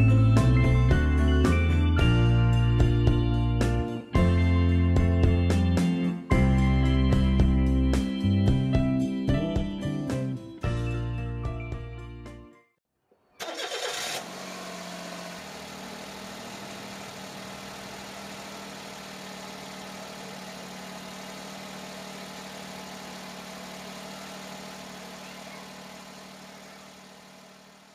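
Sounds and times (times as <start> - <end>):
car engine cranking: 13.4 - 27.9
car engine idling: 13.4 - 27.9.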